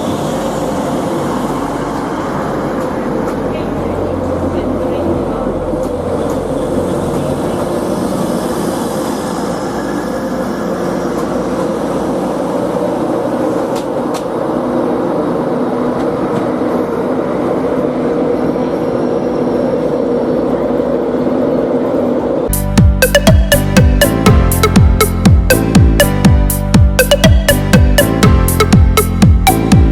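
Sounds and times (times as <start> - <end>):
train rumbling on rails: 0.0 - 22.5.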